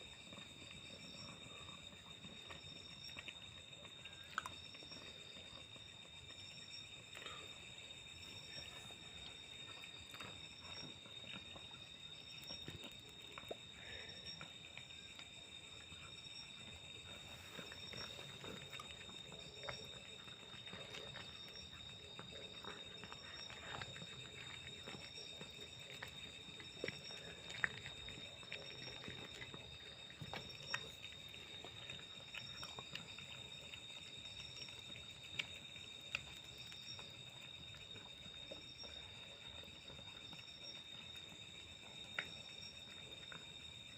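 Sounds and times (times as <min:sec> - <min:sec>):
crickets trilling: 0:00.0 - 0:43.9.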